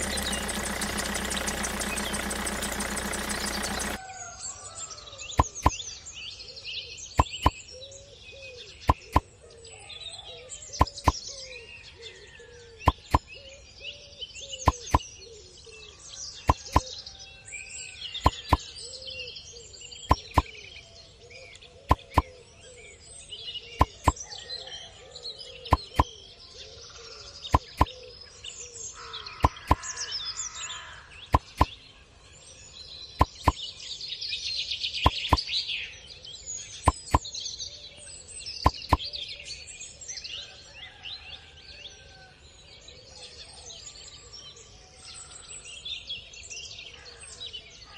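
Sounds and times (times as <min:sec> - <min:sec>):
sharp clicks in pairs: 0:00.0 - 0:04.0, 0:05.4 - 0:05.8, 0:07.2 - 0:07.6, 0:08.9 - 0:09.2, 0:10.8 - 0:11.2, 0:12.9 - 0:13.2, 0:14.7 - 0:15.0, 0:16.5 - 0:16.8, 0:18.3 - 0:18.6, 0:20.1 - 0:20.5, 0:21.9 - 0:22.3, 0:23.8 - 0:24.2, 0:25.7 - 0:26.1, 0:27.6 - 0:27.9, 0:29.4 - 0:29.8, 0:31.3 - 0:31.7, 0:33.2 - 0:33.6, 0:35.1 - 0:35.4, 0:36.9 - 0:37.2, 0:38.7 - 0:39.0
small birds chirping: 0:00.0 - 0:04.0, 0:05.2 - 0:17.1, 0:17.7 - 0:24.5, 0:25.4 - 0:40.3.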